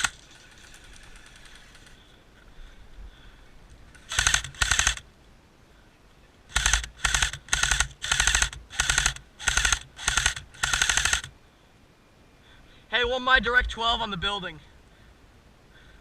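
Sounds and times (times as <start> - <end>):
airsoft rifle full-auto bursts: 4.0 - 5.0, 6.5 - 11.3.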